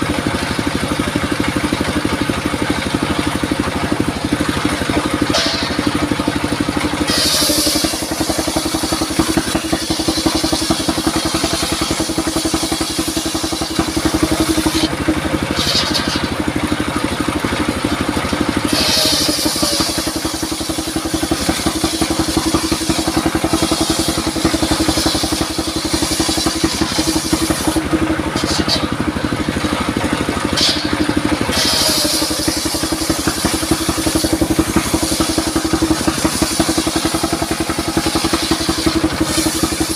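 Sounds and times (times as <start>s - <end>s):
sawmill engine throbbing: 0.0s - 39.9s
saw blade tone: 3.1s - 17.0s, 18.4s - 39.9s
hissy bursts of blade cutting wood: 4.6s - 14.9s, 15.5s - 16.4s, 18.5s - 39.9s.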